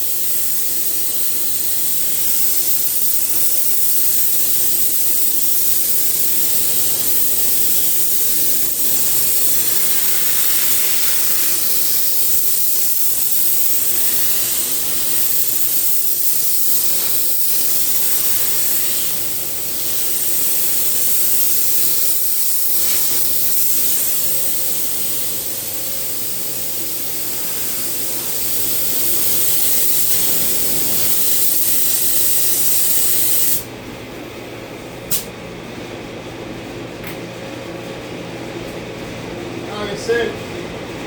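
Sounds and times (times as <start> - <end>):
loud spraying hiss: 0.0 - 33.6
sharp click: 35.1 - 35.3.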